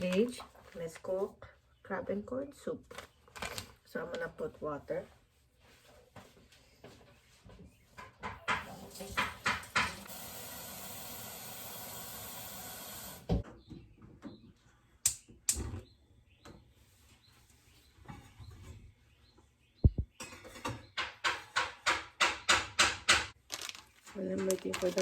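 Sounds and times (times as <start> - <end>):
tap water running into pot: 8.9 - 13.4.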